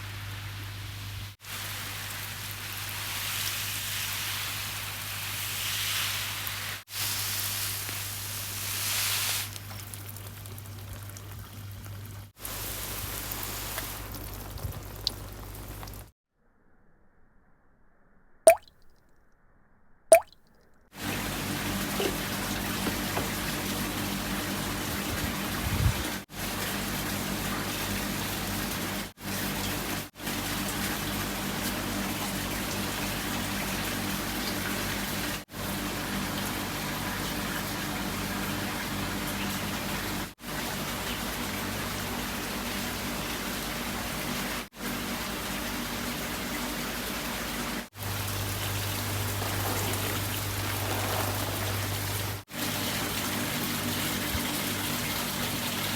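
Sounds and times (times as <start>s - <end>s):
water rushing: 20.1s - 20.3s, 47.9s - 55.9s.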